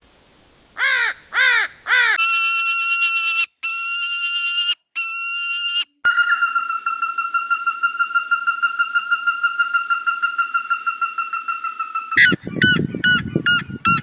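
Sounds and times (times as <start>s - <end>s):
crow cawing: 0.8s - 2.2s.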